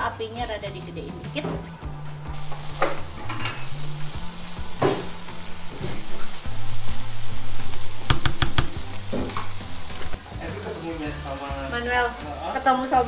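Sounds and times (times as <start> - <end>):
food sizzling in a frying pan: 1.4 - 13.0
sharp knocks: 8.1 - 9.3.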